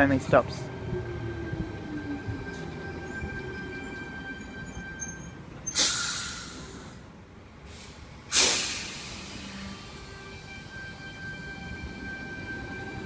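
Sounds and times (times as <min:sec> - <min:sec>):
air brakes hissing: 0:05.0 - 0:10.4.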